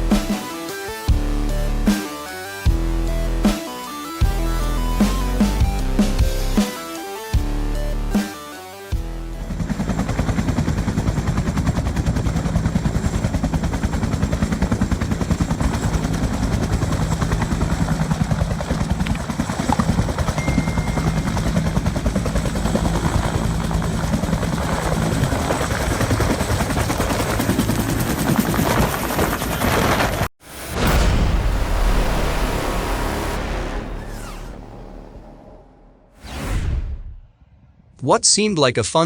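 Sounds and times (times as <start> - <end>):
helicopter rotor chopping: 8.2 - 36.4.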